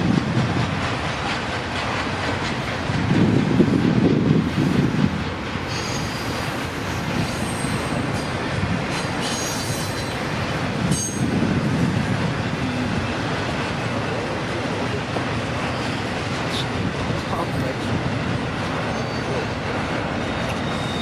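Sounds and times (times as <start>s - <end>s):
freight train cars rumbling: 0.0s - 21.0s
high-pitched wheel squeals: 9.2s - 10.2s, 18.9s - 19.5s, 20.2s - 21.0s.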